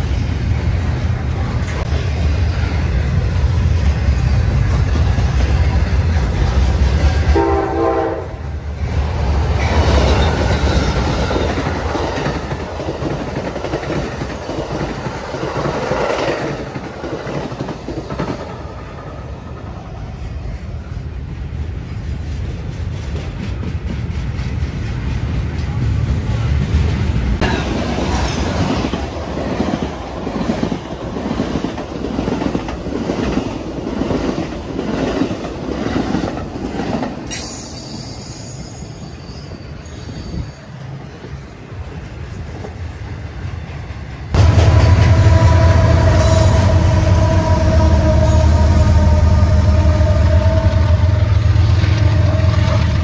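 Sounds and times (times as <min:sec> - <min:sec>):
train rumbling on rails: 0:00.0 - 0:53.0
wheels clickety-clack over rail joints: 0:00.8 - 0:08.0, 0:08.8 - 0:38.8, 0:39.8 - 0:44.8
train horn blast: 0:07.3 - 0:08.5, 0:44.4 - 0:53.0.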